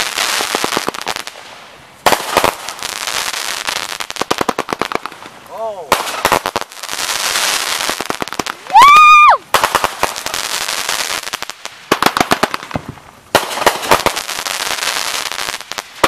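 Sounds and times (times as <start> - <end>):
fireworks crackling bangs: 0.0 - 16.0.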